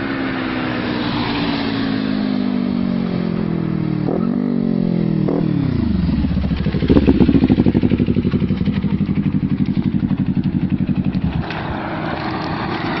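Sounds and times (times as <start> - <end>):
motorcycle exhaust burbling: 4.0 - 13.0.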